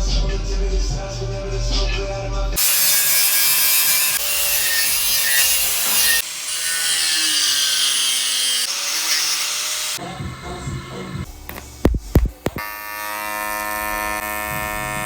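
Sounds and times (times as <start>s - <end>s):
power tool grinding metal: 2.6s - 11.0s.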